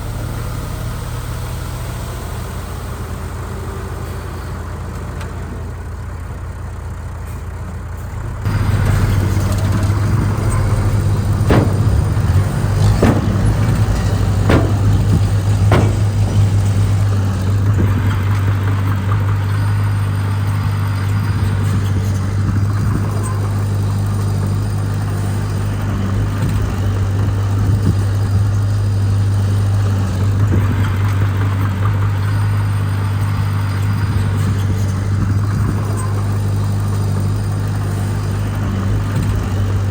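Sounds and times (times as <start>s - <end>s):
diesel machinery engine drone: 0.0s - 39.9s
sharp knocks: 9.8s - 17.9s.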